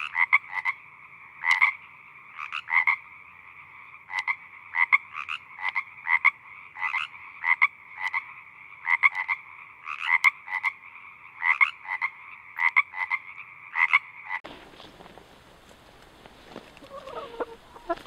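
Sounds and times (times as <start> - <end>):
animal calls: 16.8 - 18.0.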